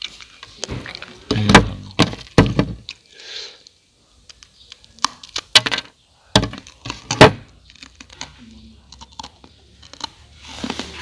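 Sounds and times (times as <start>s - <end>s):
crunching of fried rice chewing: 7.7s - 11.0s.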